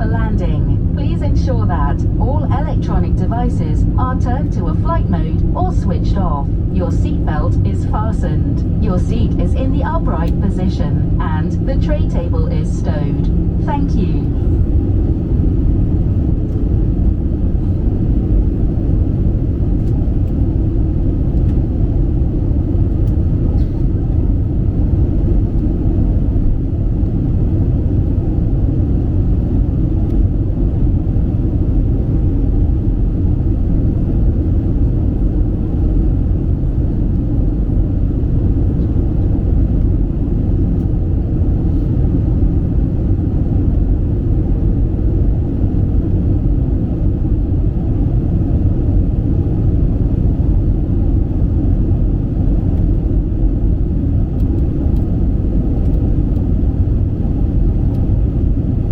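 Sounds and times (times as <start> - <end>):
airplane cabin rumble: 0.0 - 58.9
faint steady hum: 0.0 - 58.9.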